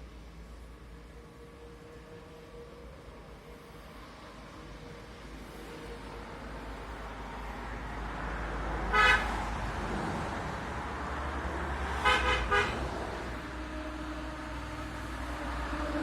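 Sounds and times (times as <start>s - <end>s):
horn honking: 8.9s - 9.3s, 11.9s - 12.9s.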